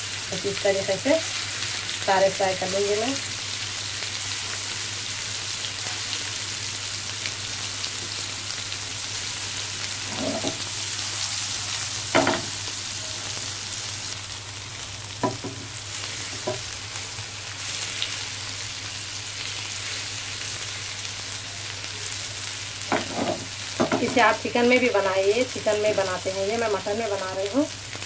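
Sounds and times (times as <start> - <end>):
meatballs sizzling in oil: 0.0 - 28.0
spatula knocking on pan: 12.2 - 12.5, 15.2 - 15.7, 16.4 - 16.6, 22.9 - 24.2.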